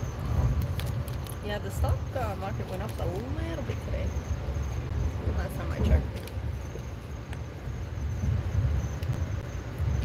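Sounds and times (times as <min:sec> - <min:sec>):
train rumble from inside: 0:00.0 - 0:10.0.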